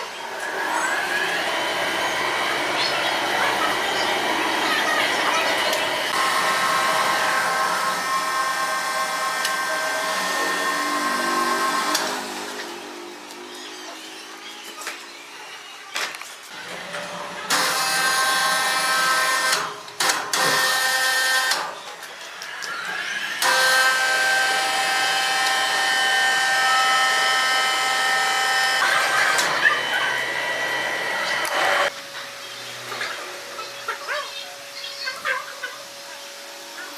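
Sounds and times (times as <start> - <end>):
saw whining through log: 0.2 - 14.5, 17.5 - 19.7, 22.6 - 31.9.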